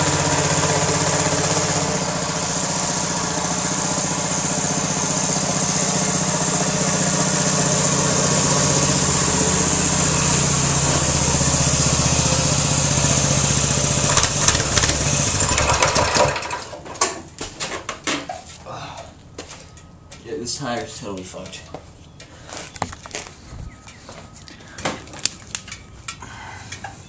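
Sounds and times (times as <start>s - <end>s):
small engine running: 0.0s - 16.6s
engine knocks: 0.0s - 16.8s.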